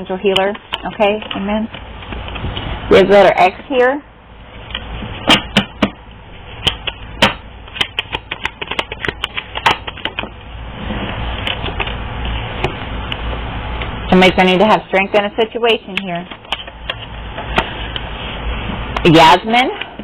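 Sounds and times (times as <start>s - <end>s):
cards shuffling: 6.6s - 10.3s.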